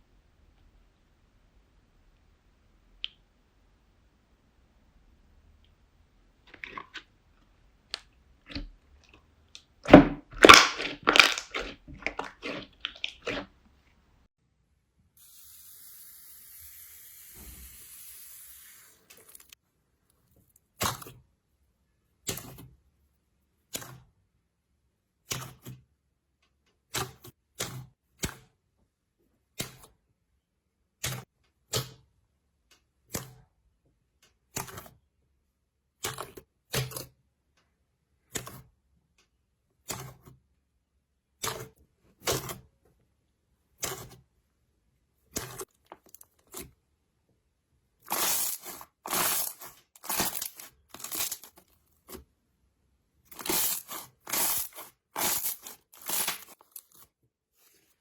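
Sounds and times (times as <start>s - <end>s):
slime crackling and popping: 9.9s - 13.4s, 48.1s - 51.7s, 53.3s - 57.0s.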